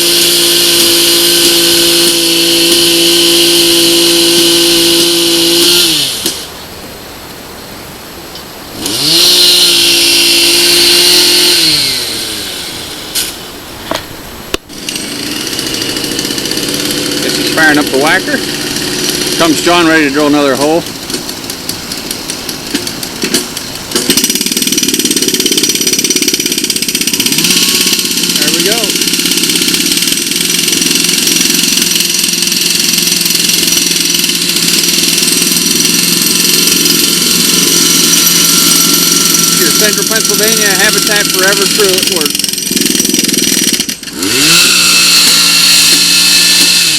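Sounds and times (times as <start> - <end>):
drill boring through log: 0.0 - 6.5, 8.8 - 13.4, 14.6 - 46.9
steady engine hum: 0.0 - 46.9
sharp knocks: 21.0 - 25.5.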